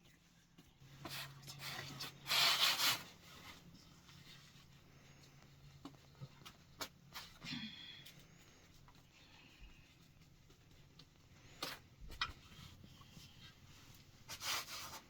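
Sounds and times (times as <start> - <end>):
rubbing scraping noise: 1.0 - 3.6.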